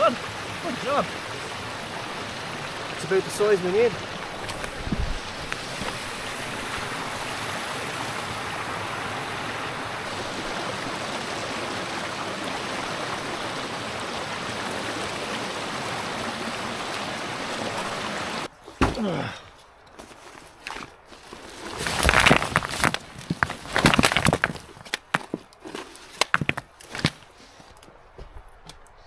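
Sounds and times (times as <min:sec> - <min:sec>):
river water rushing: 0:00.0 - 0:18.9.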